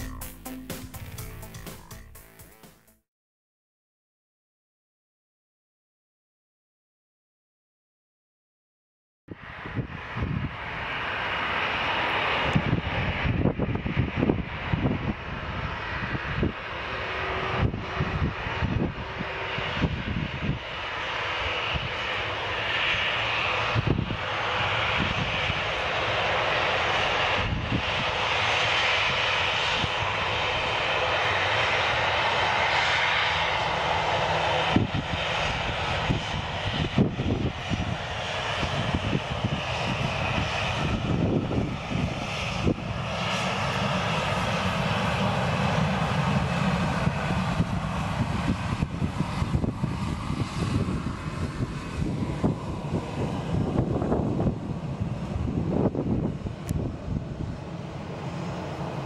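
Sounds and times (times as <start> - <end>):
jet engines roaring: 9.4 - 59.0
wind bumps on microphone: 34.6 - 43.2, 46.8 - 57.6.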